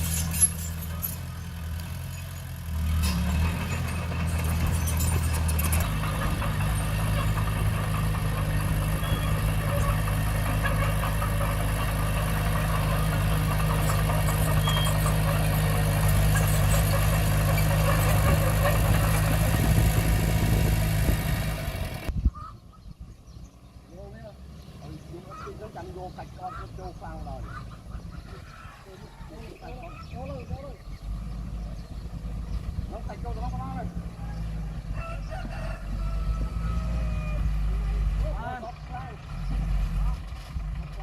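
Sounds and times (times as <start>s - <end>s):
bulldozer diesel engine running: 0.0s - 22.2s, 23.4s - 41.0s.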